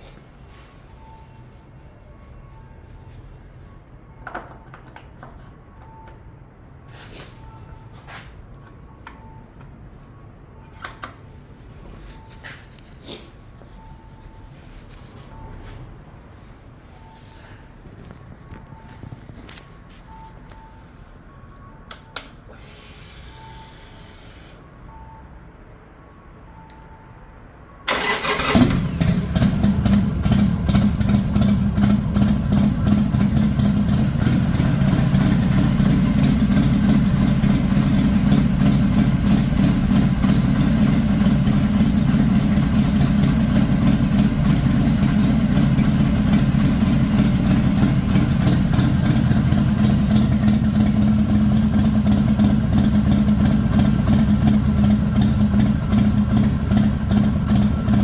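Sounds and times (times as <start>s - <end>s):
motorcycle engine starting and idling: 27.9s - 58.0s.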